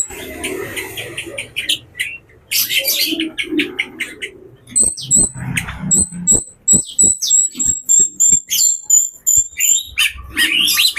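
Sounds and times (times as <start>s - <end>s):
songbird whistling: 4.8s - 10.9s.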